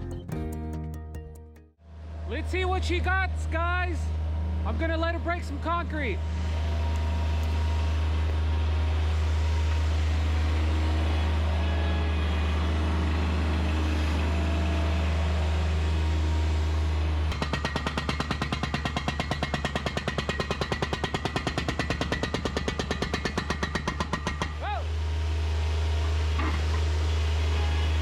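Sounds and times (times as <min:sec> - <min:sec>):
loader engine running: 0:01.8 - 0:28.0
hydraulic breaker hammering concrete: 0:17.3 - 0:24.6.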